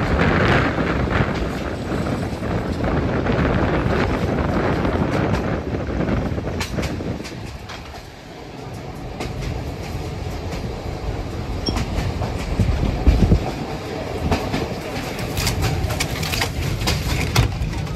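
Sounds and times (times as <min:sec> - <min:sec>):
train rumbling on track: 0:00.0 - 0:17.9
wheels clicking over rail joints: 0:03.7 - 0:17.9.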